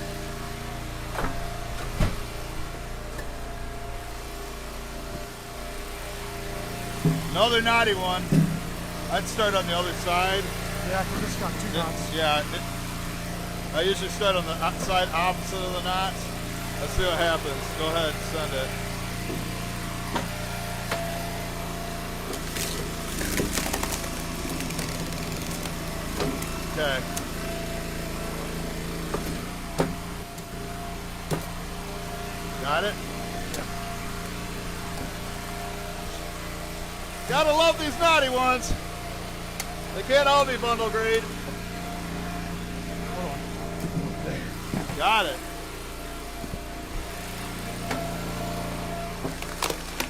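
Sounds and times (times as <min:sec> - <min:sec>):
log splitter engine running: 0:00.0 - 0:50.0
sharp knocks of wood: 0:08.3 - 0:08.7, 0:22.3 - 0:26.6, 0:29.1 - 0:30.0, 0:31.2 - 0:31.5
wood cracking: 0:22.3 - 0:27.4, 0:49.2 - 0:50.0.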